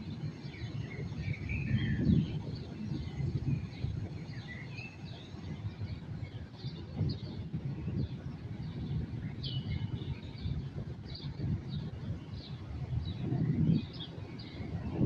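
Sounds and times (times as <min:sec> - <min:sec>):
birds chirping: 0:00.0 - 0:15.0
low background rumble: 0:00.0 - 0:15.0.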